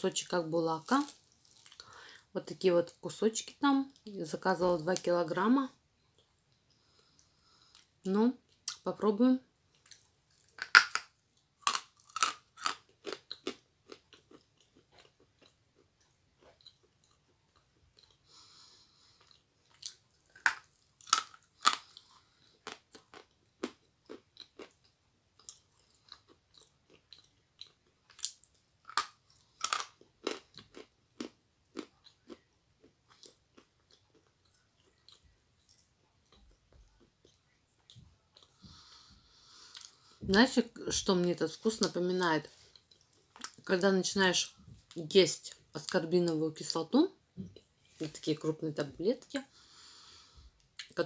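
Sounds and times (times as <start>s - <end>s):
crunching and chewing clay: 0.8s - 2.0s, 9.7s - 18.2s, 19.2s - 38.6s.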